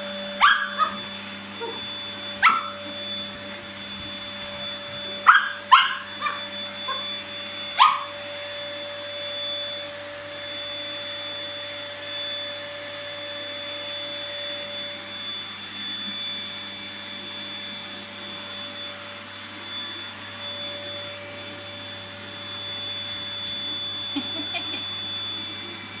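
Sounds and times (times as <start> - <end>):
vacuum cleaner running: 0.0 - 26.0
small dog yipping: 0.3 - 3.0, 5.2 - 8.2.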